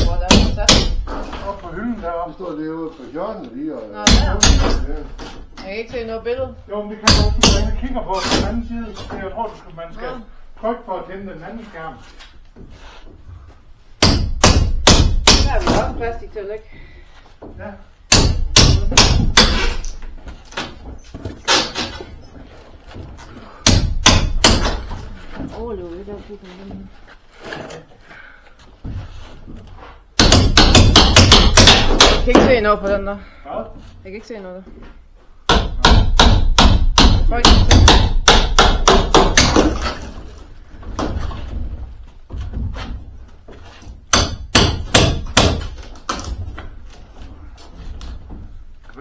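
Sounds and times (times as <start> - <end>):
hard objects knocking and banging: 0.0 - 2.0, 4.0 - 9.6, 12.5 - 16.3, 17.4 - 27.8, 28.6 - 33.1, 34.7 - 48.9
handling and rustling: 19.9 - 23.6, 24.8 - 30.2.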